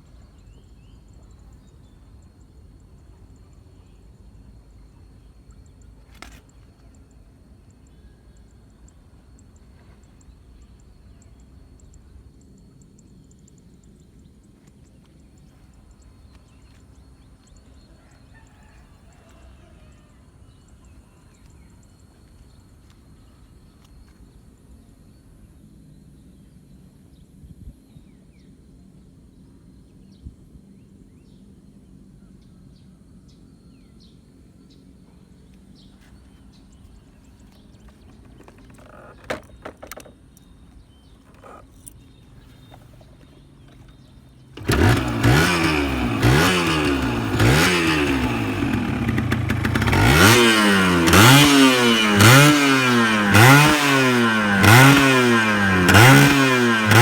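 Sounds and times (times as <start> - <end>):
motorcycle engine revving: 35.4 - 40.1, 40.8 - 57.0.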